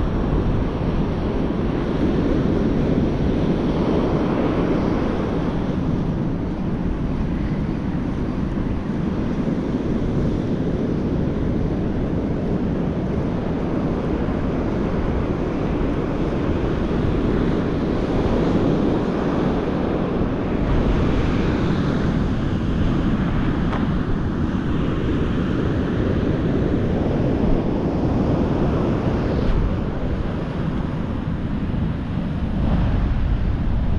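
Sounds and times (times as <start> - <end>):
ocean surf breaking: 0.0 - 33.9
wind buffeting microphone: 0.0 - 33.9.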